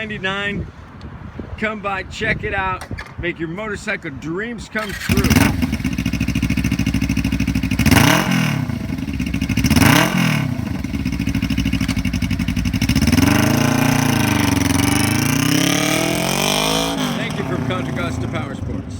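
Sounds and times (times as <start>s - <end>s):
motorcycle engine revving: 4.8s - 18.9s.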